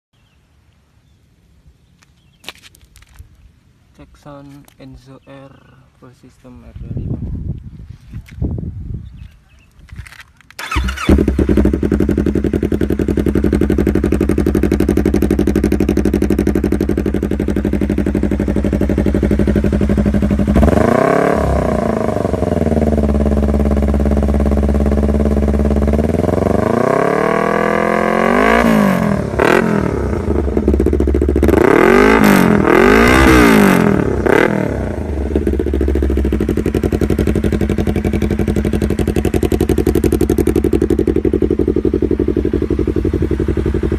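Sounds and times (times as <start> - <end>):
motorcycle engine idling and revving: 9.9 - 43.9.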